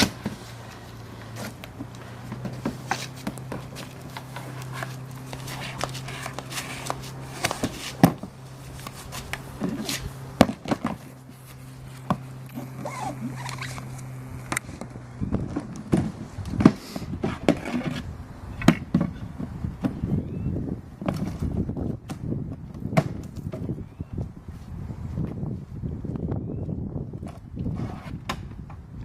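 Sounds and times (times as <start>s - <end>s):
steady low hum: 0.0s - 29.0s
boat parts knocking and clunking: 14.5s - 18.0s.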